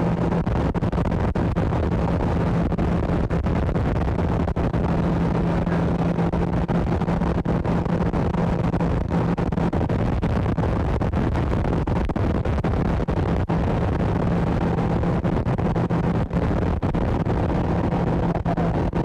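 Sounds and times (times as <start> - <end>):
boat motor humming: 2.0 - 9.7, 14.0 - 19.0.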